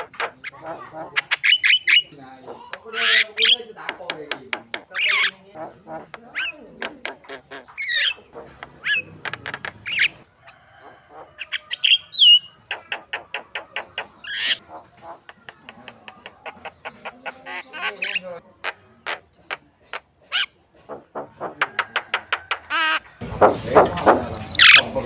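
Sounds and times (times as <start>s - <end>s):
bird singing chattering song: 0.0s - 25.0s.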